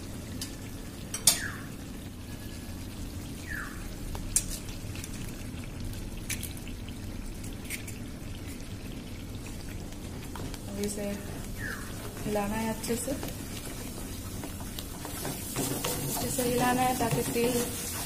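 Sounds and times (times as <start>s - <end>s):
oil and masala frying: 0.0s - 18.0s.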